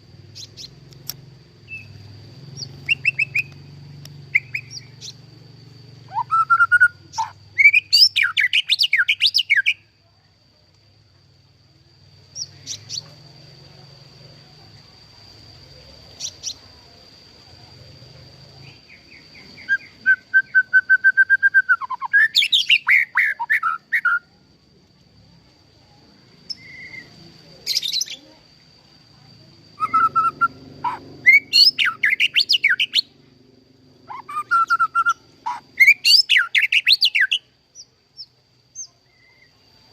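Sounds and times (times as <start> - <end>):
faint high-pitched whine: 0.0 - 39.9
bird singing whistles: 1.7 - 2.0, 2.6 - 3.6, 4.3 - 5.2, 6.1 - 9.8, 19.0 - 24.3, 26.5 - 27.1, 29.8 - 33.1, 34.1 - 39.6.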